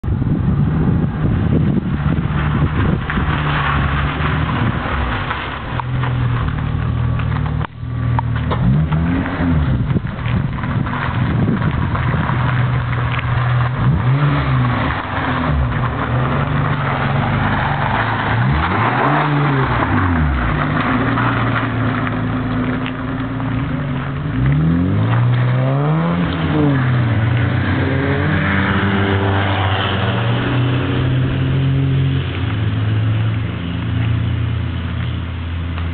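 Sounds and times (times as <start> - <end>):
car engine revving: 0.4 - 35.9.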